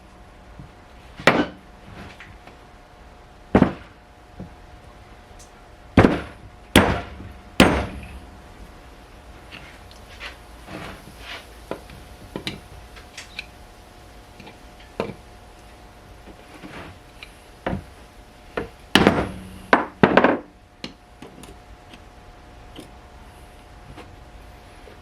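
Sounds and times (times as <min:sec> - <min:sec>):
loud metal clanks: 0:06.0 - 0:08.4, 0:19.0 - 0:20.3
tools and metal parts clunking: 0:07.0 - 0:08.3.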